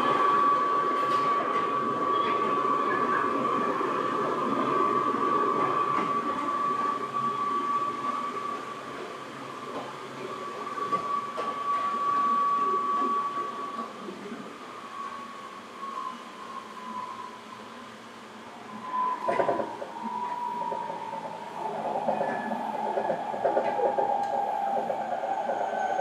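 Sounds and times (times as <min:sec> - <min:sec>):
electric train whine: 0:00.0 - 0:26.0
wheels rumbling on track: 0:18.6 - 0:26.0.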